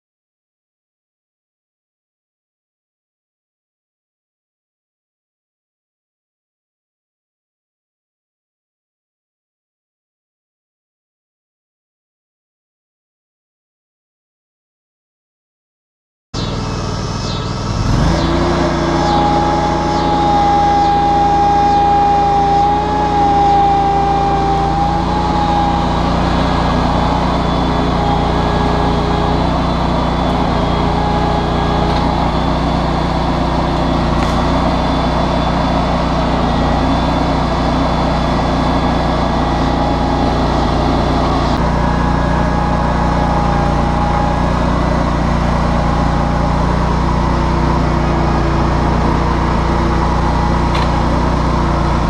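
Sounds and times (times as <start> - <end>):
garden tractor engine running: 16.4 - 52.0
high whine: 16.4 - 52.0.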